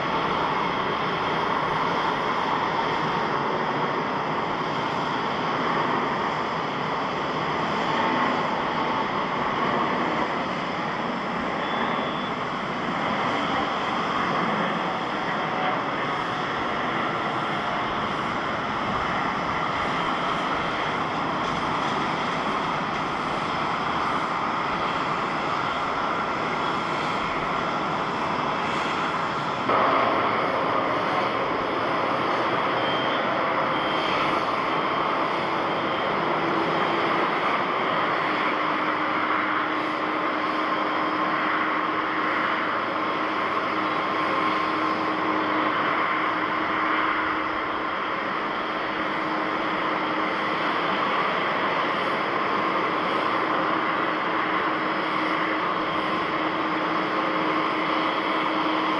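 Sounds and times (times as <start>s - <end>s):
jet engines roaring: 0.0s - 58.9s.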